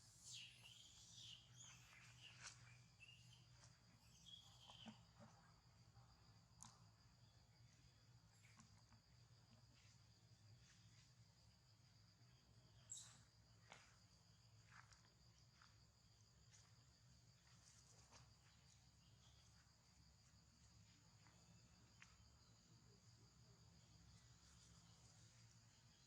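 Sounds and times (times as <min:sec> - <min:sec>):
high-pitched insect drone: 0:00.0 - 0:02.5, 0:04.0 - 0:05.0
faint chirps or clicks: 0:00.2 - 0:05.5, 0:12.8 - 0:13.3.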